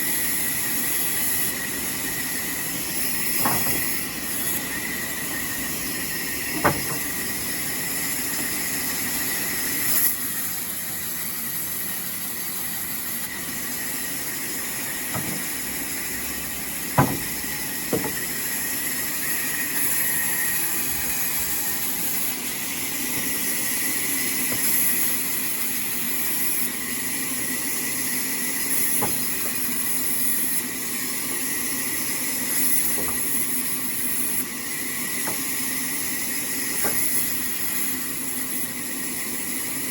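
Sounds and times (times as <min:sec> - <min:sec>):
sawmill saw whining: 0:00.0 - 0:39.9
sharp knocks: 0:06.6 - 0:07.1, 0:15.1 - 0:15.5, 0:17.0 - 0:18.2.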